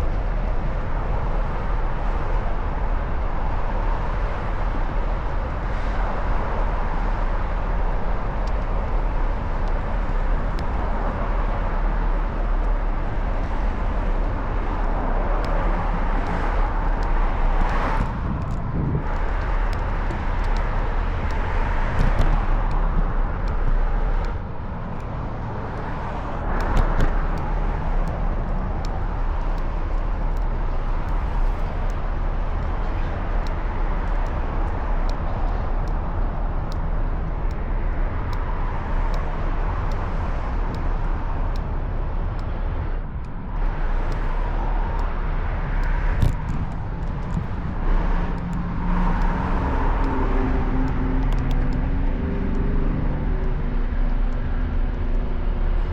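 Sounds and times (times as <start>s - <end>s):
cars passing: 0.0s - 55.9s
city traffic rumble: 0.0s - 55.9s.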